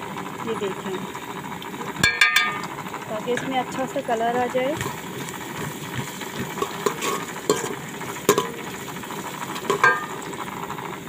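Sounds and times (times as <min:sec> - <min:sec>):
food sizzling in hot oil: 0:01.8 - 0:11.0
spoon scraping and knocking pot: 0:04.8 - 0:08.7, 0:09.6 - 0:10.2.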